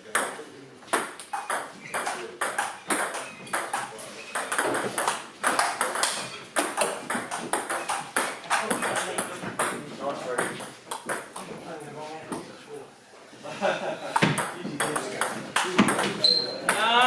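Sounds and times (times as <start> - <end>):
table tennis ball clicking: 1.2 - 9.3.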